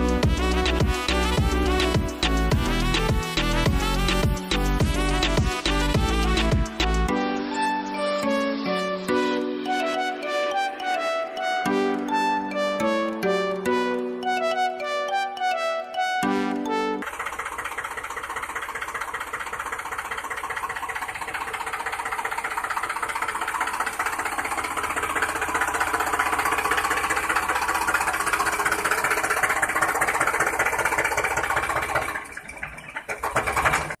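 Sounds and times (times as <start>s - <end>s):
small motor chattering: 17.0s - 34.0s.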